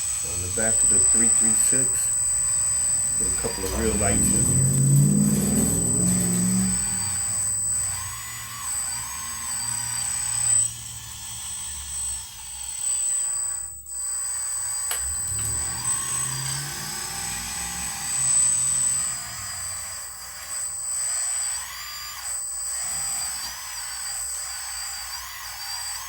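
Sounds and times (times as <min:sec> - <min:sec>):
steady high-pitched tone: 0:00.0 - 0:10.6
electric motors and pump whining: 0:00.0 - 0:26.0.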